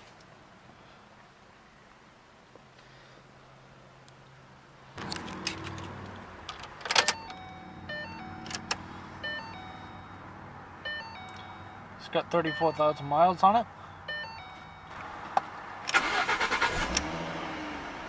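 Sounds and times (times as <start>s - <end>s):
electronic chime tones: 7.1s - 8.5s, 9.2s - 10.2s, 10.8s - 13.2s, 14.1s - 15.0s.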